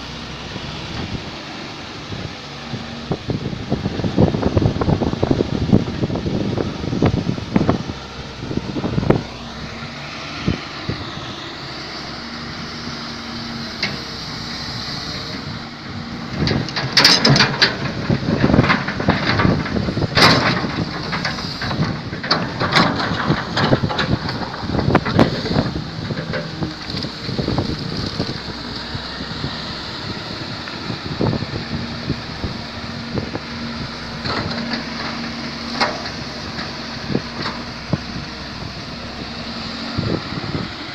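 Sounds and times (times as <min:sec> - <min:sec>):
diesel engine running: 0:00.0 - 0:40.9
loud clanking and knocking: 0:16.3 - 0:28.5, 0:33.0 - 0:38.4.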